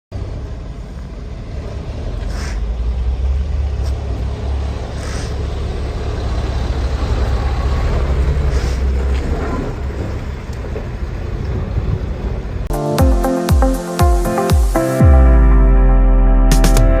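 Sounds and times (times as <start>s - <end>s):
diesel truck engine rumbling: 0.1s - 16.2s
air hissing: 2.3s - 2.7s, 4.9s - 5.5s.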